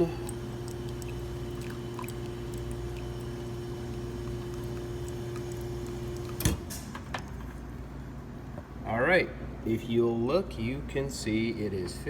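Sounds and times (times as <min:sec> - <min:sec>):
water flowing: 0:00.0 - 0:06.7
espresso machine pump humming: 0:00.0 - 0:07.6.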